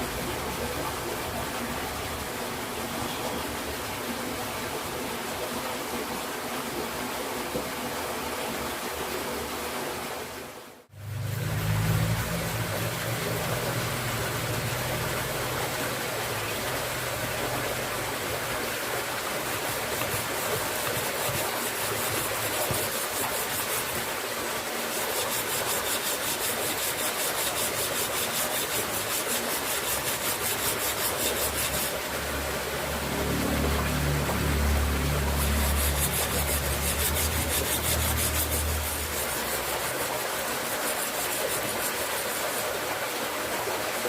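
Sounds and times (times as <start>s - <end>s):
abrasive rubbing on knife blade: 25.0s - 32.0s, 35.3s - 42.3s.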